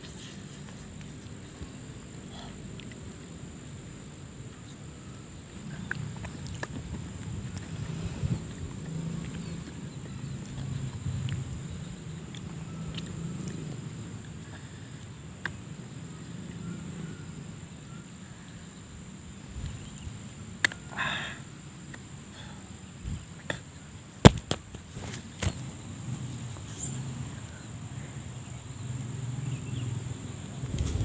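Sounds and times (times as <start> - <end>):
crunchy biting clicks: 2.5 - 3.4, 5.6 - 15.6, 19.9 - 20.9.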